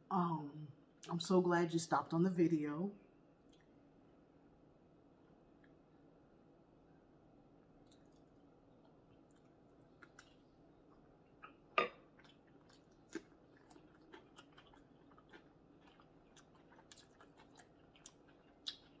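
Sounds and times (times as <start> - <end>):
chewing and crunching food: 7.6 - 19.0.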